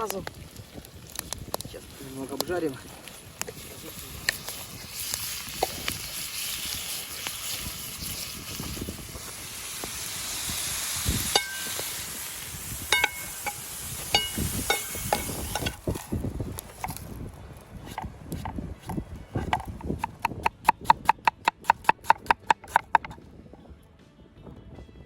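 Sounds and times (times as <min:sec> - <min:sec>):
vegetables sizzling in a frying pan: 0:00.0 - 0:17.0
utensil clinking against metal pan: 0:14.2 - 0:15.8.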